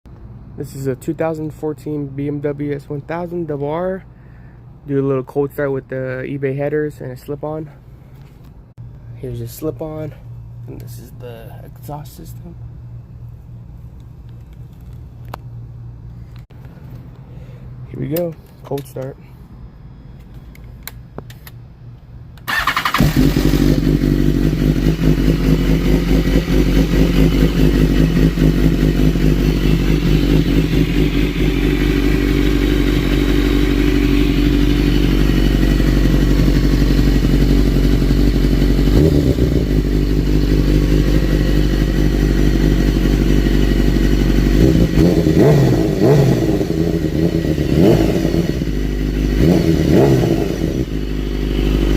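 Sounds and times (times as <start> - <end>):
motorcycle engine starting: 22.4 - 51.9
motorcycle engine idling: 22.5 - 51.9
motorcycle throttle revs: 22.5 - 51.9.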